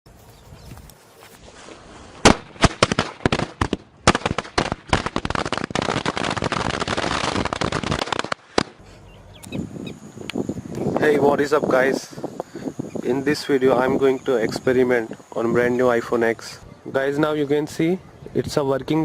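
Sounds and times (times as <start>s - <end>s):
firecrackers banging: 2.2s - 8.9s.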